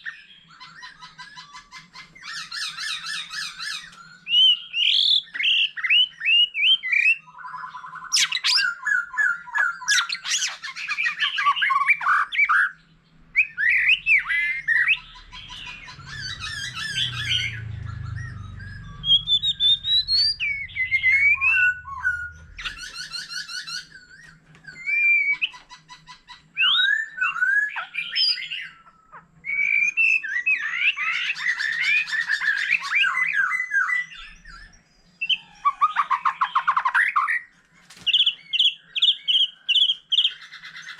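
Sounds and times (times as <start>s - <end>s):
bird singing whistled phrases: 0.0s - 25.7s, 26.6s - 37.5s.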